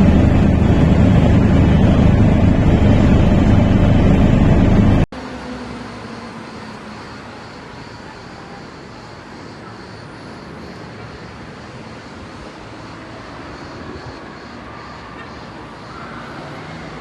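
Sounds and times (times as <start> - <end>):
distant engine drone: 0.0 - 17.0.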